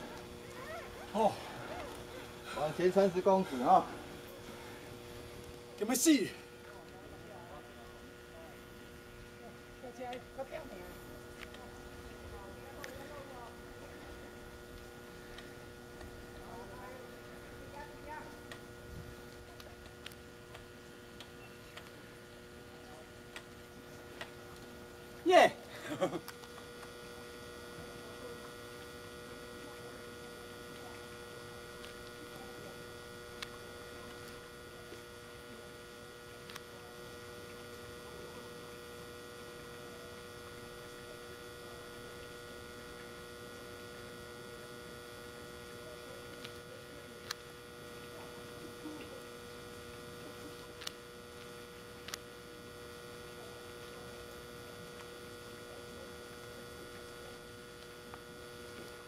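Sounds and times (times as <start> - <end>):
electrical hum: 0.0 - 59.0.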